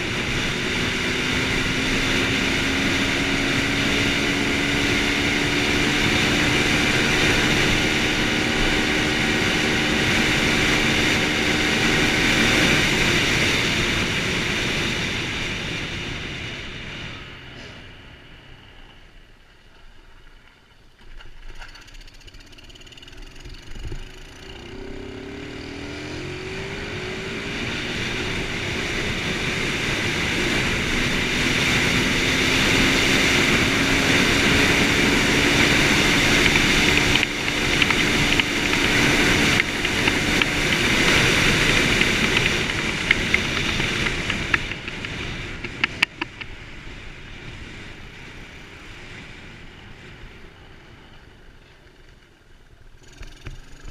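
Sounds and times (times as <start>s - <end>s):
dirt bike engine revving: 0.0s - 15.3s, 21.9s - 46.1s
sharp clicks: 36.4s - 46.5s.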